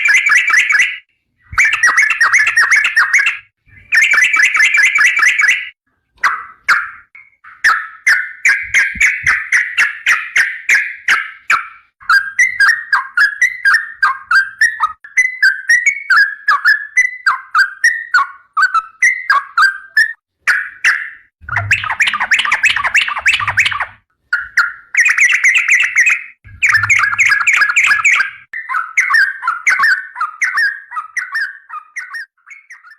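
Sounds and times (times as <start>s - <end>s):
bird chattering song: 0.0s - 32.9s
dull low thumps: 26.5s - 27.4s.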